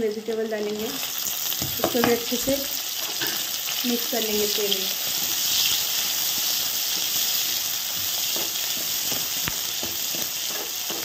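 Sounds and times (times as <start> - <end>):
vegetables sizzling in hot oil: 0.0 - 11.0
spatula scraping a pan: 5.0 - 11.0.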